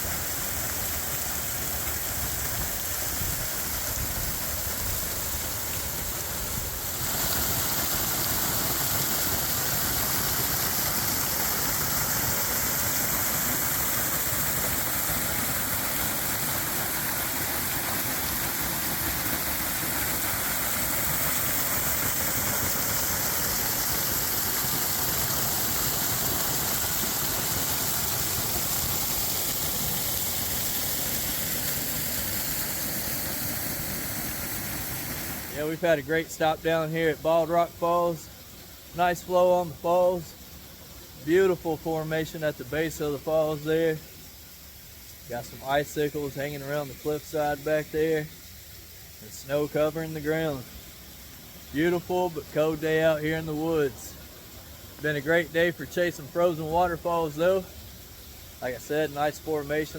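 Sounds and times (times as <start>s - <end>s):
waterfall rushing: 0.0s - 36.1s.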